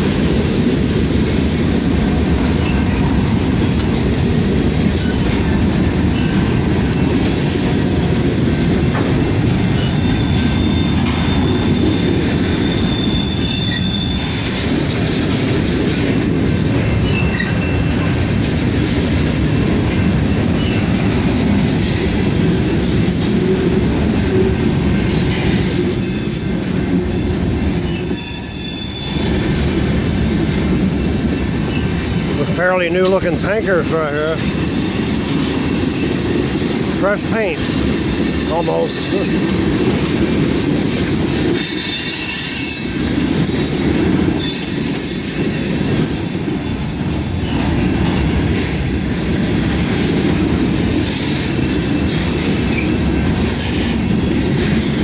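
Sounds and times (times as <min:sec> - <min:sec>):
steel wheels rumbling on rail: 0:00.0 - 0:55.0
high-pitched wheel squeals: 0:09.8 - 0:14.5, 0:25.9 - 0:30.0, 0:41.6 - 0:42.9.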